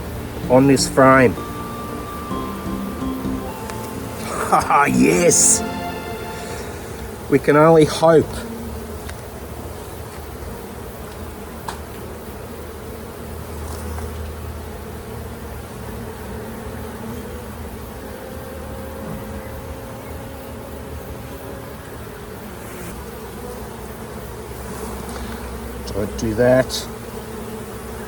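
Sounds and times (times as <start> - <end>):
bees buzzing: 0.0 - 9.0, 17.6 - 28.0.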